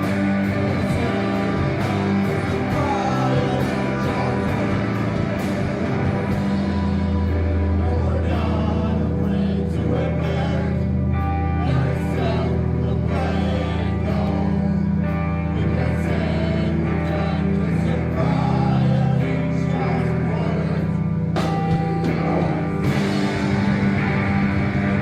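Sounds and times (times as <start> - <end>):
heavy bass notes: 0.0 - 25.0
rock band playing live: 0.0 - 25.0.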